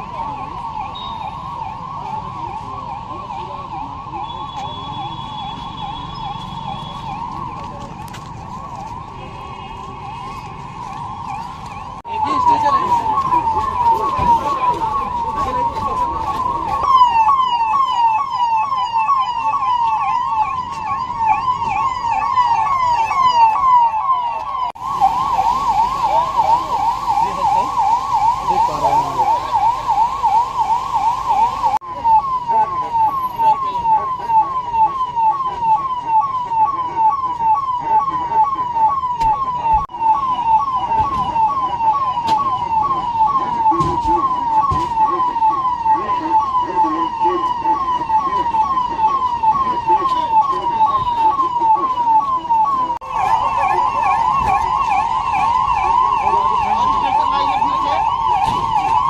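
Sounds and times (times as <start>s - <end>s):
electronic siren yelping: 0.0s - 59.0s.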